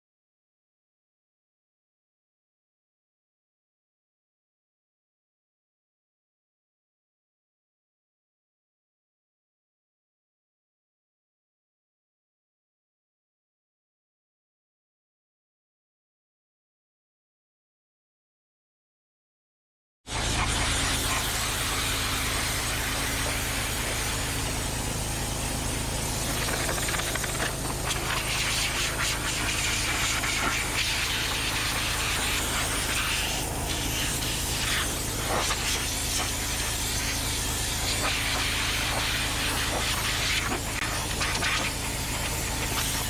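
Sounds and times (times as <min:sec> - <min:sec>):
mulching drum hissing: 0:20.2 - 0:43.0.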